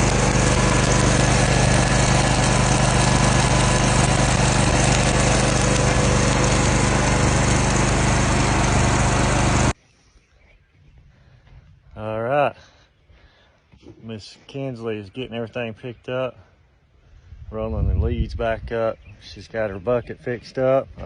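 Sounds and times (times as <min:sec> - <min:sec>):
welder engine running: 0:00.0 - 0:09.8.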